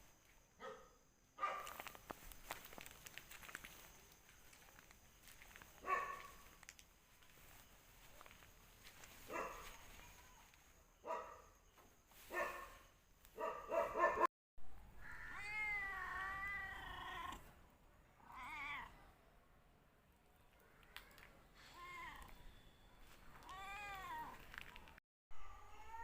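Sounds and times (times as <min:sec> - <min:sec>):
cat meowing: 0:15.0 - 0:17.5, 0:18.2 - 0:19.0, 0:23.4 - 0:24.4.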